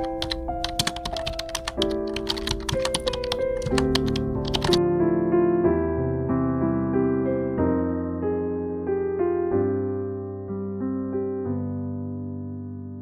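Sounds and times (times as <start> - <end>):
rapid sharp clicks: 0.0 - 4.8
soft music with held notes: 0.0 - 13.0.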